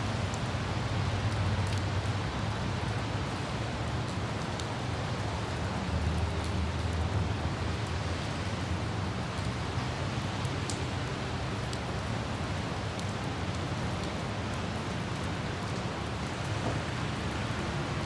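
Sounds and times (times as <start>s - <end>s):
city traffic rumble: 0.0s - 18.0s
light rain: 0.0s - 18.0s
wind: 0.0s - 18.0s.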